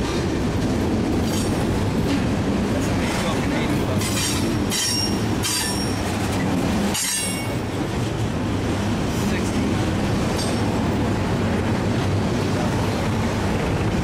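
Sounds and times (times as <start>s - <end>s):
freight train rumbling: 0.0s - 14.0s
train wheels squealing: 4.1s - 6.0s, 7.0s - 7.6s.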